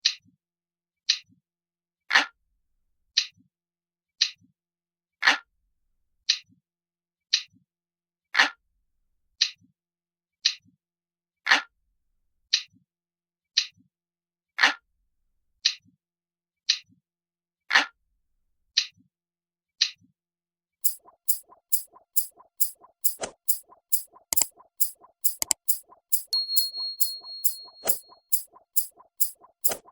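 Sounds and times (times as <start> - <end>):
clock ticking: 20.8 - 29.9.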